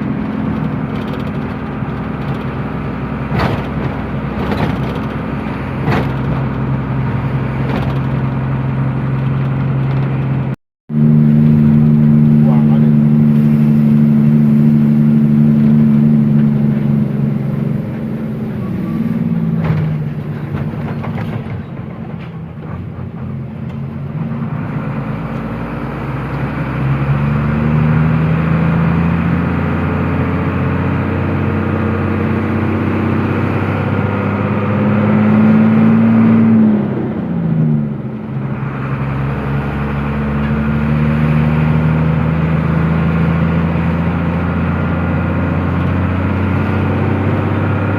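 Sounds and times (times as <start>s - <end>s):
truck engine pulling: 0.0s - 47.9s.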